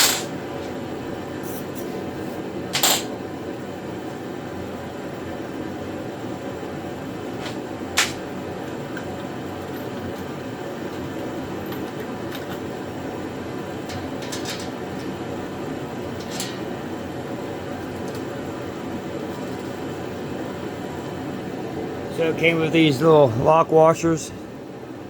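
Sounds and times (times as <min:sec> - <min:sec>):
fan humming: 0:00.0 - 0:25.0
bolts and washers clicking: 0:02.8 - 0:03.1, 0:09.8 - 0:12.8, 0:13.8 - 0:15.2, 0:16.0 - 0:16.8.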